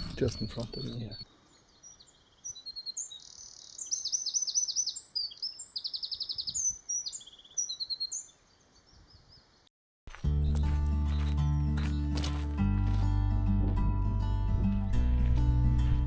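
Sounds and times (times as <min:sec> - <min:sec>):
wren singing high twittering trills: 0:00.0 - 0:09.7.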